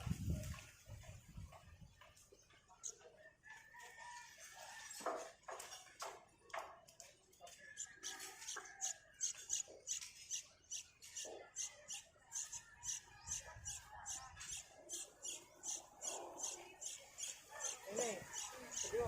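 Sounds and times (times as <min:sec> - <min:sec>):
baby bird cheeping: 0:07.8 - 0:19.0.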